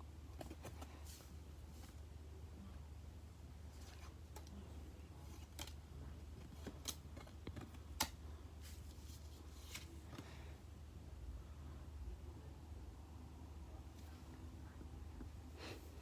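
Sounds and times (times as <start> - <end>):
low steady hum: 0.0 - 16.0
trading cards rustling and snapping: 6.4 - 10.0.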